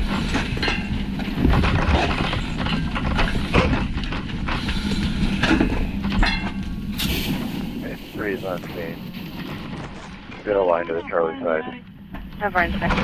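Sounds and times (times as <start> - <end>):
knocking and clattering: 0.0 - 7.6
low mechanical hum: 0.0 - 13.0.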